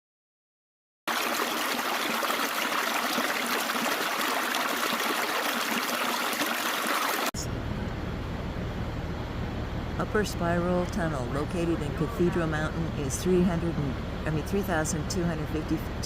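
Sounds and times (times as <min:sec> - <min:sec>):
water flowing: 0:01.1 - 0:07.4.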